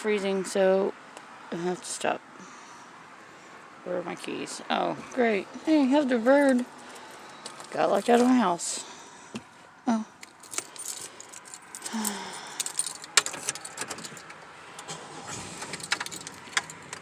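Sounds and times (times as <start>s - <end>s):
keys jangling: 6.4s - 8.3s, 10.2s - 14.4s, 15.6s - 17.0s.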